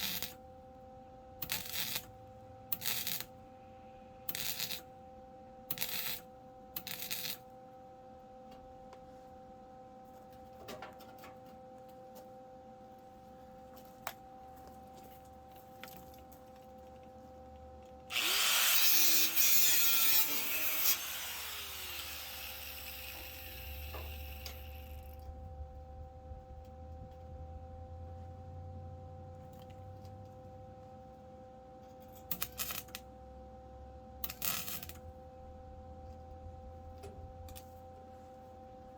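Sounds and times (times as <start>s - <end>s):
faint steady hum: 0.0s - 38.9s
hand-held power tool running: 18.1s - 24.8s.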